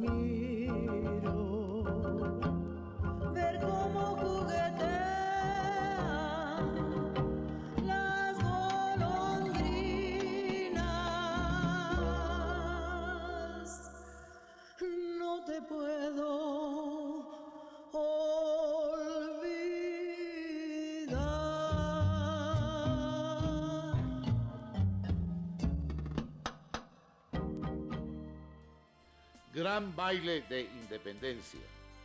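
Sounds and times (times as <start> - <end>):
instrumental backing: 0.0 - 14.2, 21.1 - 32.0
singer with wide vibrato: 3.0 - 25.0.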